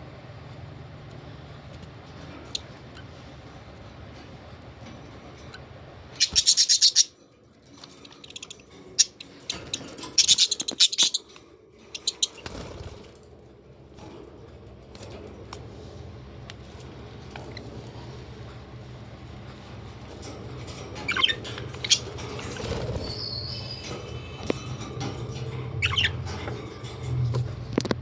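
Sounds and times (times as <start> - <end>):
steady low hum: 0.0 - 28.0
parrots chattering chirps: 2.4 - 3.1, 5.3 - 7.2, 7.8 - 13.0, 20.9 - 27.2.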